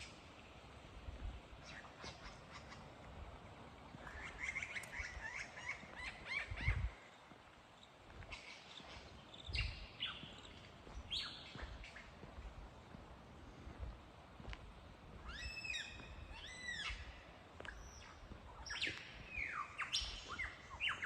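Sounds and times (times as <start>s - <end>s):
bird singing mimicked calls: 15.2s - 17.1s.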